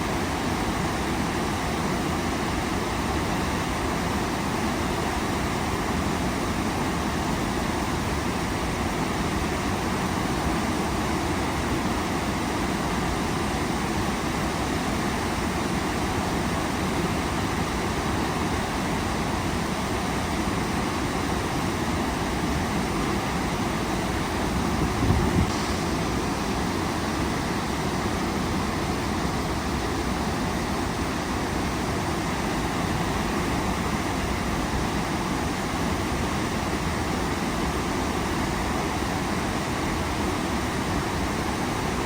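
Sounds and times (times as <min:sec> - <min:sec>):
waterfall rushing: 0:20.5 - 0:42.0.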